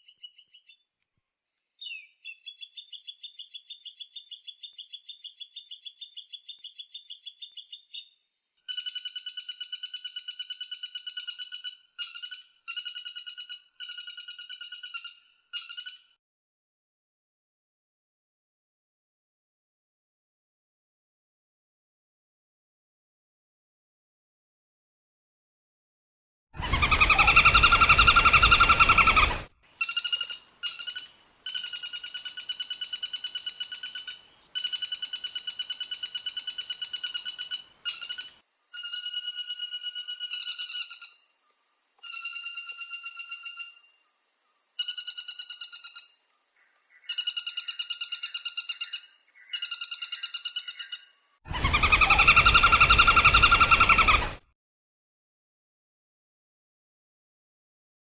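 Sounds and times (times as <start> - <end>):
woodpecker trilling: 26.6 - 41.3, 44.8 - 54.4.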